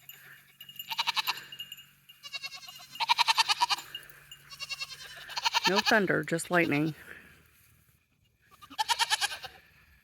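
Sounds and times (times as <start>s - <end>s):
goats bleating: 0.8s - 1.5s, 2.2s - 7.0s, 8.4s - 9.7s.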